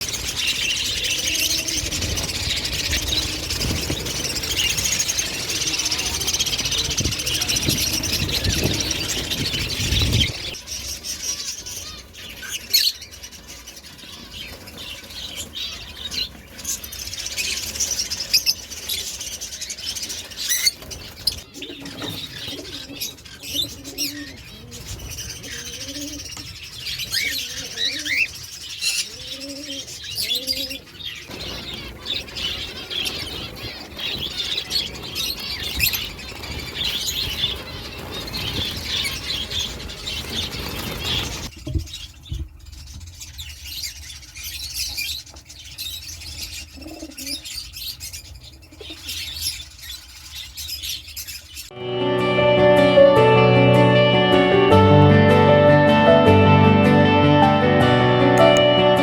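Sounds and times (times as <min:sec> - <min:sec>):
wings flapping: 0:00.0 - 0:23.1, 0:30.9 - 0:42.0
cage birds chirping: 0:00.0 - 0:54.5
low cooing calls: 0:21.5 - 0:28.4, 0:29.0 - 0:33.6, 0:46.7 - 0:47.6.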